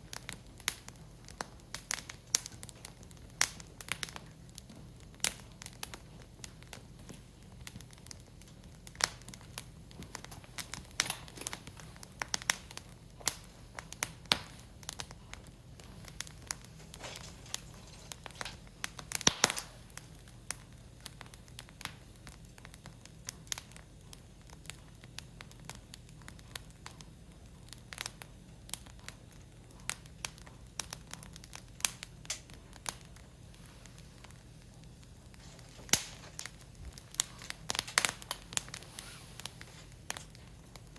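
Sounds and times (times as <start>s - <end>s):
firewood crackling and popping: 0.0s - 40.9s.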